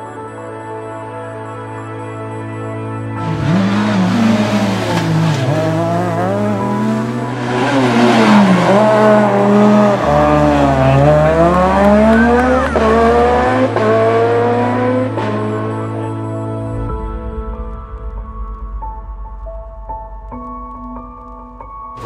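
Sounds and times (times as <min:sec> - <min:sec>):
rally car engine revving: 0:03.2 - 0:16.0.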